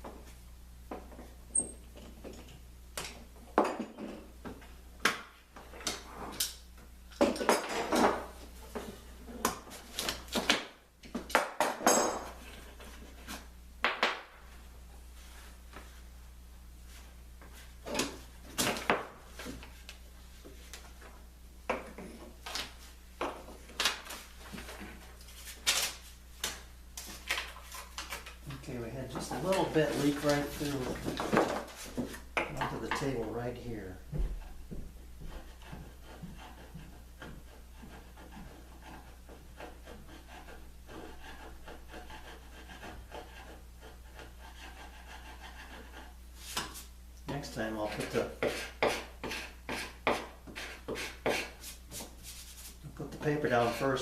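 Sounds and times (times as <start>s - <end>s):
woodworking tools clattering: 7.1s - 9.0s, 27.4s - 33.3s.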